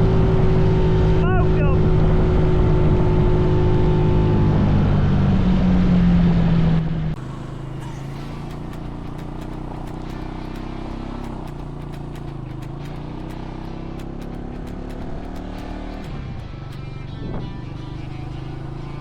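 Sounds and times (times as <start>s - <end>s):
small engine running: 7.2s - 19.0s.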